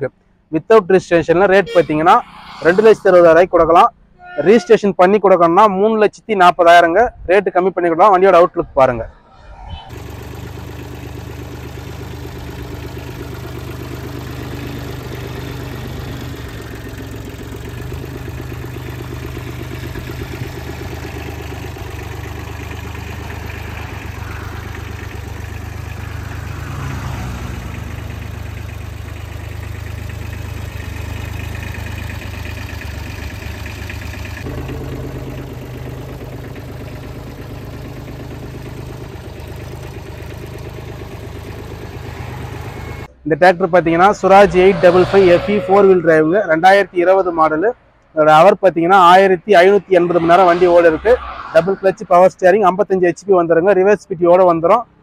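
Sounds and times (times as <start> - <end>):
diesel tractor engine idling: 9.9 - 48.0.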